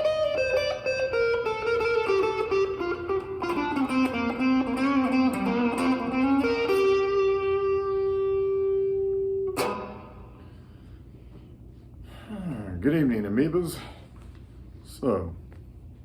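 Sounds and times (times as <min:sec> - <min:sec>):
electric guitar melody: 0:00.0 - 0:10.8.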